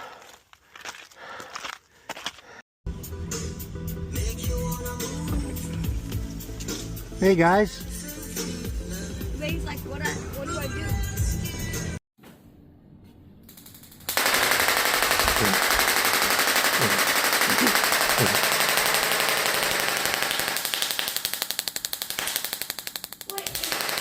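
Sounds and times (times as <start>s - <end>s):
bicycle freewheel ratcheting: 13.5s - 24.0s.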